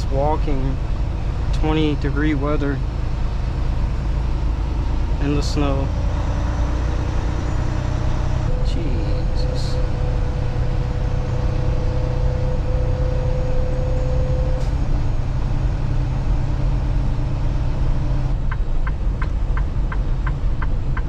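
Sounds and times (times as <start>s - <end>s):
road noise: 0.0s - 21.0s
truck diesel engine droning: 0.0s - 21.0s
turn signal ticking: 18.3s - 21.0s.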